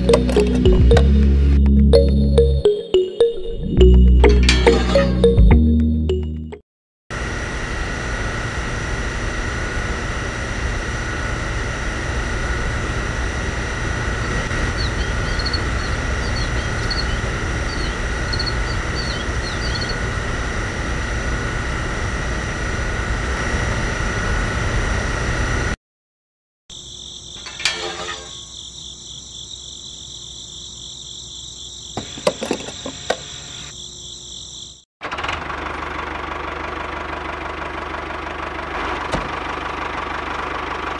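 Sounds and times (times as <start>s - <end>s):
higher-pitched motor hum: 7.2s - 25.7s
small electric pump motor whining: 12.6s - 21.9s, 32.0s - 33.7s.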